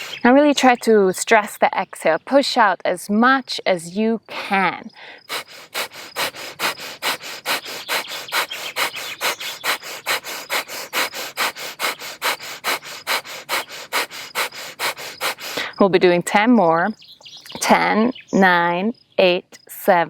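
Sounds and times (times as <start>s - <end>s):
rapid forceful nasal exhales: 0.0s - 0.2s, 5.0s - 15.8s.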